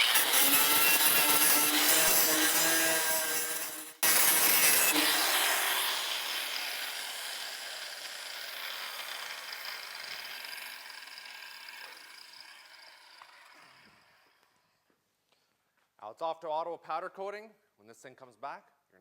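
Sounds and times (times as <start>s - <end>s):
power grinder on steel: 0.0s - 14.5s.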